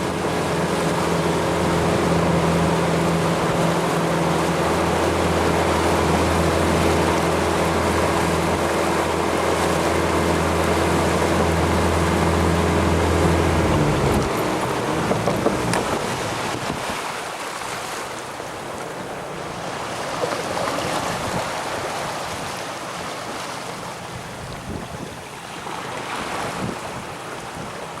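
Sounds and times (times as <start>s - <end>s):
wind buffeting microphone: 0.0s - 17.1s, 24.3s - 25.3s
water washing against boat hull: 0.0s - 28.0s.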